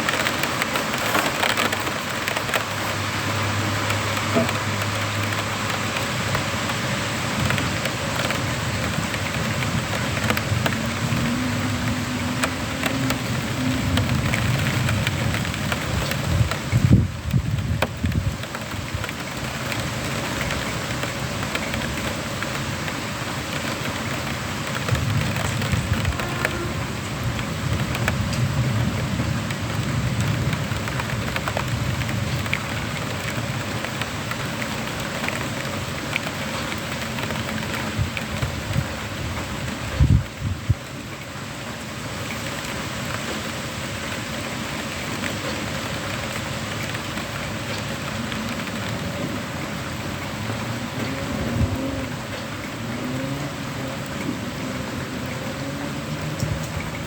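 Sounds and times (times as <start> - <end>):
heavy rain pattering: 0.0 - 57.0
low thunder rumble: 7.3 - 19.0, 24.8 - 33.6.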